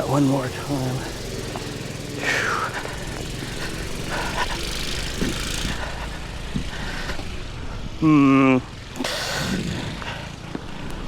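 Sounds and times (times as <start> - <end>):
snow blower engine running: 0.0 - 7.7.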